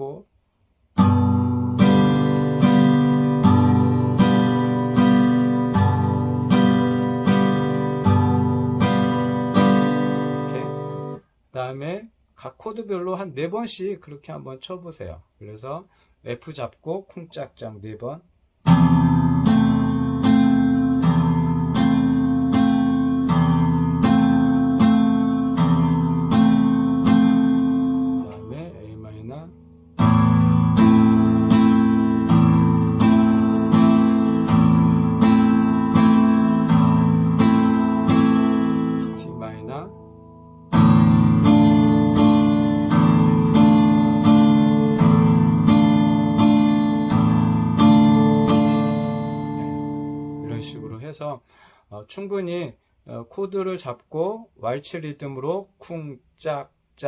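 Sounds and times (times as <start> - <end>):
acoustic guitar strumming: 1.0 - 11.2, 18.6 - 50.9.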